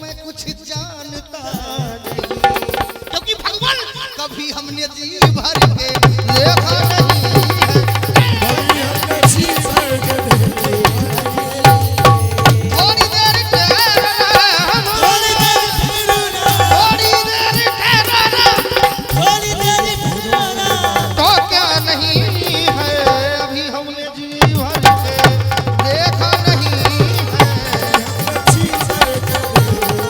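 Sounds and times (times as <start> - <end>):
bending instrumental melody: 25.6 - 30.0.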